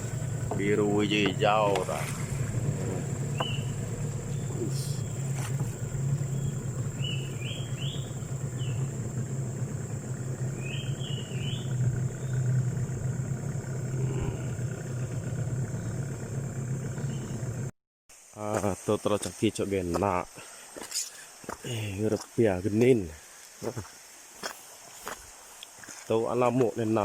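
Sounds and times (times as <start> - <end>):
low motor drone: 0.0 - 17.7
high rising chirps: 3.1 - 13.1.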